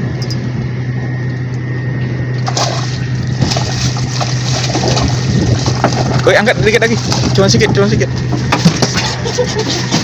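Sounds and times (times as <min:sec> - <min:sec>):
boat engine humming: 0:00.0 - 0:10.0
water splashing and sloshing: 0:02.3 - 0:10.0.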